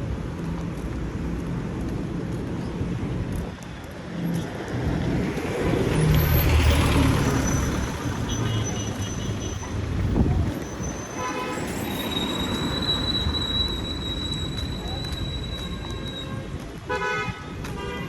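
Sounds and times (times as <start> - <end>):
street traffic: 0.0 - 18.0
vehicle engine rumble passing: 4.9 - 15.4.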